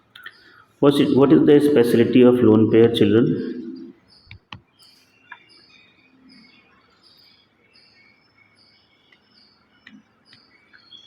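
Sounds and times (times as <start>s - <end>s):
small bird chirping: 3.5s - 11.0s.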